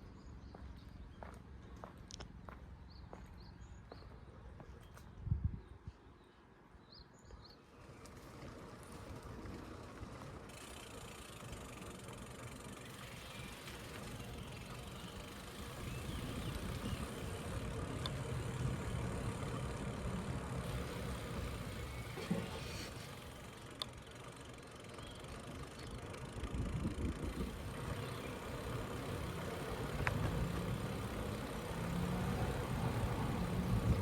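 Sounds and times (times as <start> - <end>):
bicycle tyres rumbling on road: 7.6 - 34.0.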